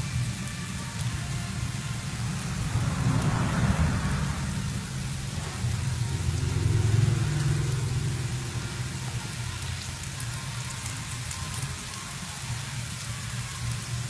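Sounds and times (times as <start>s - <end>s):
food sizzling in hot oil: 0.0s - 14.0s
low rumble: 2.0s - 9.0s.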